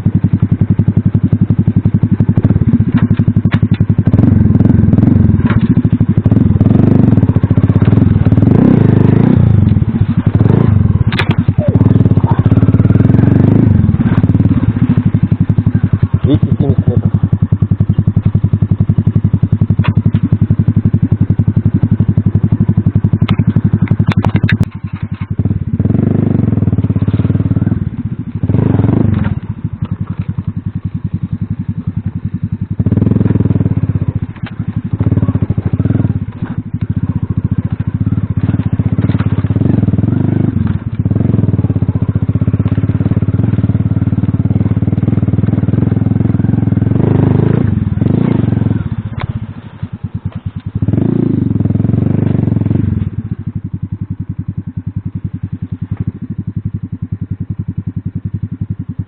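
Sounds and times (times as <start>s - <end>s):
moped engine revving: 0.0s - 59.0s
sharp clicks and rattles: 2.0s - 30.6s, 33.1s - 50.8s.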